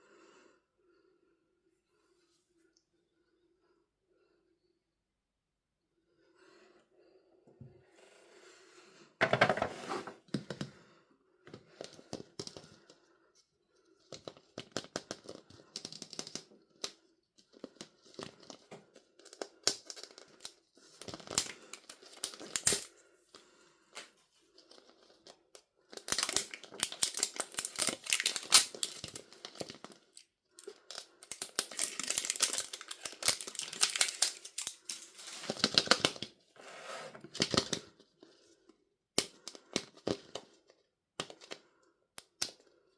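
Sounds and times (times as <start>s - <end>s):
packaging crinkling and tearing: 19.2s - 22.9s, 25.9s - 36.3s, 37.3s - 37.8s.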